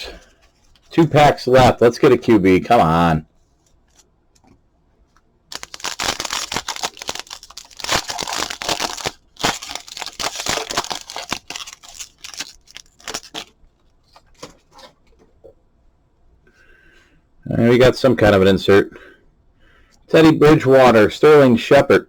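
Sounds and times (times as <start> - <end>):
cards rustling and clicking: 3.6 - 15.2
card pack wrapper tearing and crinkling: 5.5 - 13.6.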